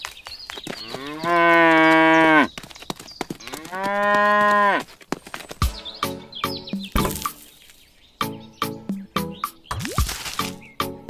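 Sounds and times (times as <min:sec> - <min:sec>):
cow mooing: 0:00.8 - 0:02.5, 0:03.5 - 0:04.8.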